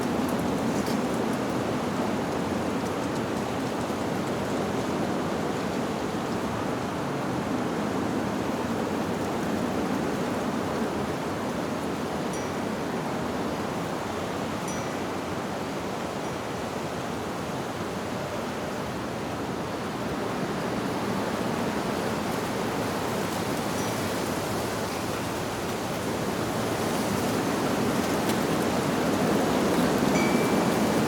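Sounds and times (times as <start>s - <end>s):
wind rushing through leaves: 0.0s - 31.0s
faint wind chime tones: 12.3s - 12.7s, 14.6s - 15.2s, 30.1s - 31.0s.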